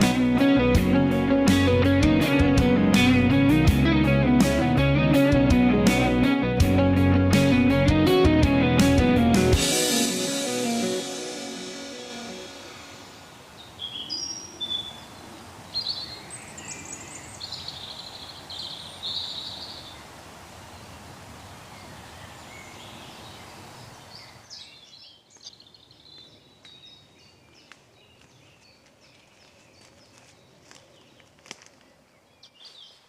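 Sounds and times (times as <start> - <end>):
steady background hiss: 9.8 - 24.8
birds singing and calling: 13.6 - 20.0, 21.7 - 33.0.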